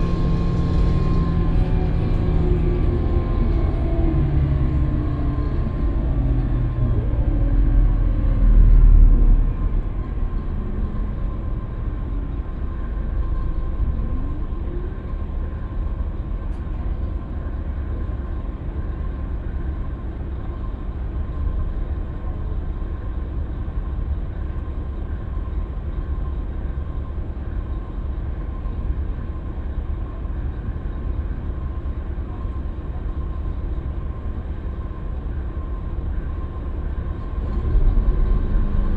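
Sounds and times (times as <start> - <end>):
bus engine rumble: 0.0 - 38.9.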